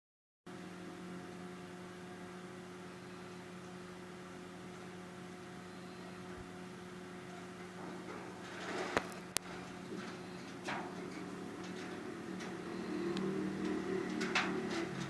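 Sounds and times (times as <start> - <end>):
steady low hum: 0.5 - 15.0
faint rustling: 7.2 - 15.0.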